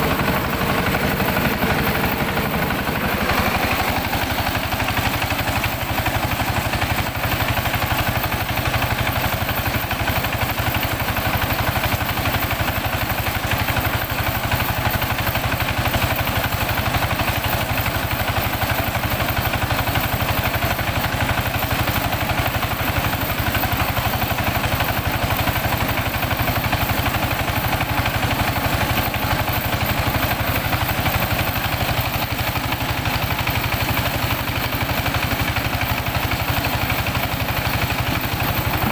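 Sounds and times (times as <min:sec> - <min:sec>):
rice huller engine running: 0:00.0 - 0:38.9.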